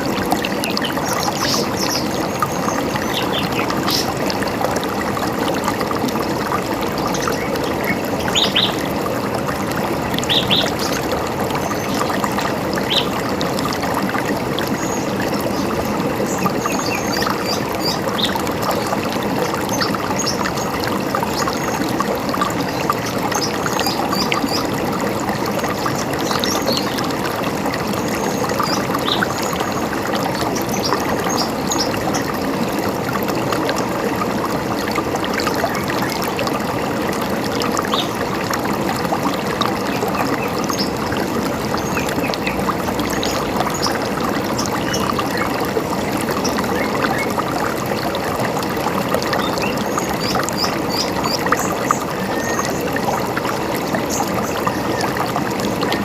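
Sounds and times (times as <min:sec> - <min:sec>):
river running over stones: 0:00.0 - 0:56.0
birds chirping: 0:10.2 - 0:11.9.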